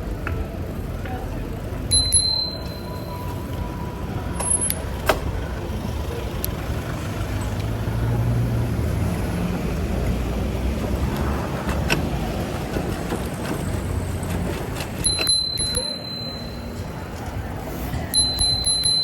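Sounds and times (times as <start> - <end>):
large vehicle engine hum: 0.0 - 19.0
road traffic noise: 0.0 - 19.0
bicycle bell ring: 1.9 - 3.8, 4.4 - 4.8, 15.0 - 17.0, 18.1 - 19.0.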